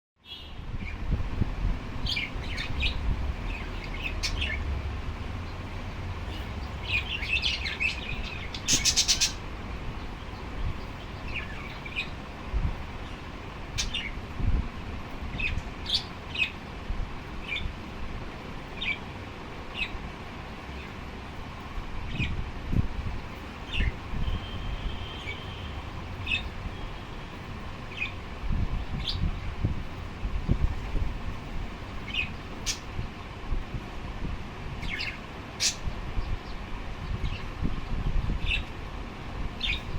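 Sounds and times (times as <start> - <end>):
bird chirping: 2.0 - 4.6, 6.3 - 9.4, 10.0 - 12.2, 13.0 - 14.2, 23.6 - 27.1, 27.9 - 28.2
small birds chirping: 2.0 - 4.7, 5.4 - 14.2, 15.3 - 16.6, 17.4 - 17.8, 18.7 - 21.4, 23.0 - 32.9, 34.8 - 37.6, 38.4 - 38.8, 39.5 - 39.9.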